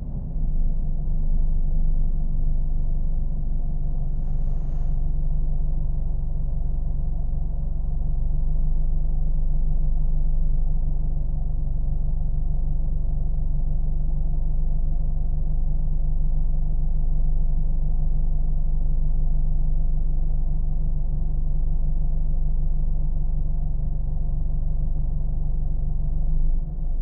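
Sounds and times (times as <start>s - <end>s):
car engine running: 0.0s - 16.2s.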